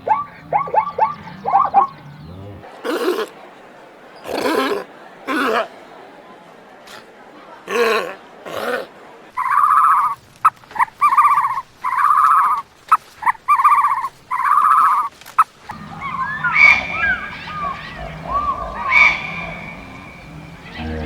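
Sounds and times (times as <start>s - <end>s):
chirping and whistling calls: 0.0s - 3.2s, 15.7s - 21.0s
animal wavering cries: 2.9s - 3.3s, 4.3s - 5.7s, 15.7s - 21.0s.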